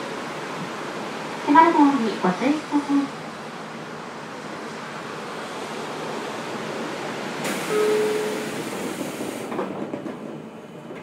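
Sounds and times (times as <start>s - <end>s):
train running noise: 0.0s - 11.0s
sudden hiss: 7.4s - 9.5s
short steady tone: 7.6s - 8.4s.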